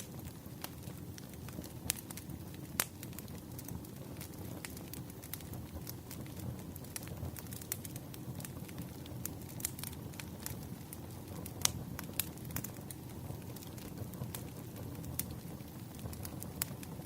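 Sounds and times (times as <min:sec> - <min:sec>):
firewood crackling: 0:00.0 - 0:17.0
low fire rumble: 0:00.0 - 0:17.0.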